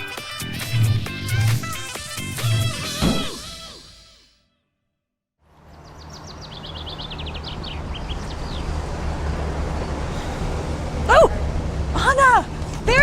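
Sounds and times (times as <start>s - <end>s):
low traffic rumble: 5.4s - 13.0s
small bird chirping: 5.7s - 8.8s.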